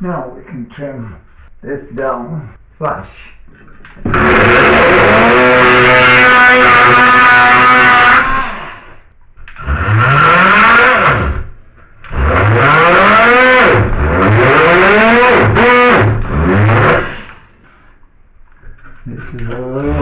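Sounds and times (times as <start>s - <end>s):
power tool motor spinning up: 4.0s - 8.9s, 9.6s - 11.5s, 12.1s - 17.4s.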